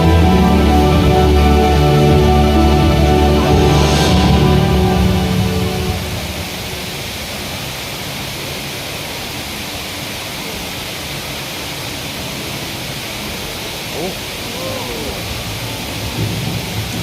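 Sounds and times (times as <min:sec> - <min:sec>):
music: 0:00.0 - 0:06.9
indoor waterfall rushing: 0:00.0 - 0:17.0.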